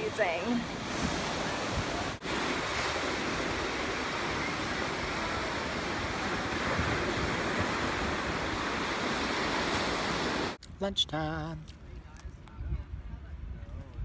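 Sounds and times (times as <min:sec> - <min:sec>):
wind buffeting microphone: 0:00.0 - 0:10.5, 0:11.8 - 0:14.0
ocean surf breaking: 0:00.0 - 0:10.6.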